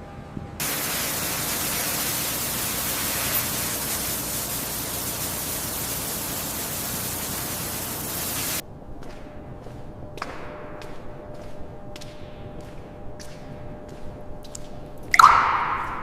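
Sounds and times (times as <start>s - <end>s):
steady static hiss: 0.6s - 8.6s.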